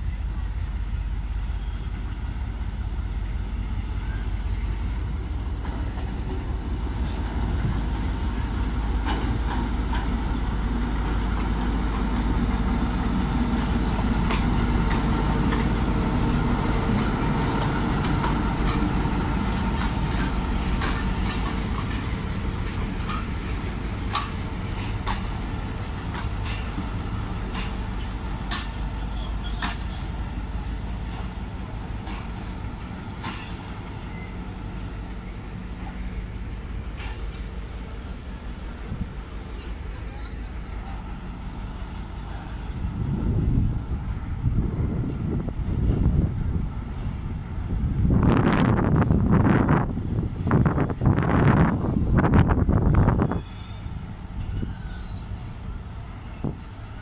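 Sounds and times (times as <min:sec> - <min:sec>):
diesel locomotive engine: 0:00.0 - 0:57.0
wheels clicking over rail joints: 0:05.5 - 0:42.9.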